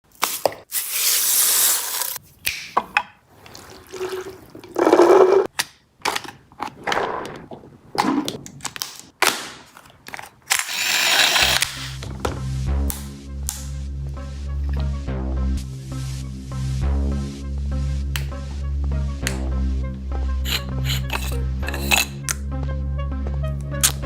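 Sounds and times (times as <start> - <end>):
toy blaster clicks and knocks: 9.7 - 12.0
short hissing bursts: 10.7 - 12.0, 20.5 - 22.1
electronic music with heavy bass: 12.6 - 24.0.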